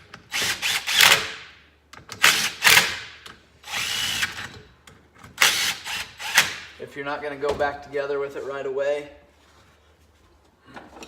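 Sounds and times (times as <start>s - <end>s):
power drill whining: 3.7s - 4.6s.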